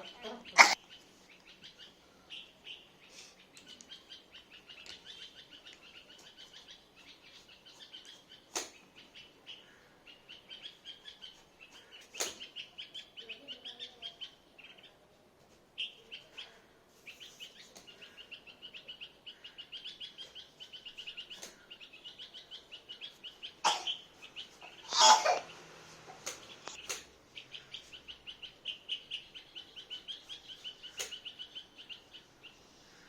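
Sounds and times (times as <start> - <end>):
bird chirping: 0.0 - 33.0
sharp clicks: 26.2 - 27.2, 31.0 - 31.3.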